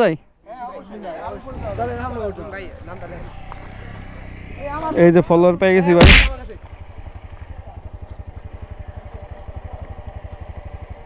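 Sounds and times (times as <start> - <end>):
motorcycle engine idling: 0.3 - 5.0, 6.0 - 11.0.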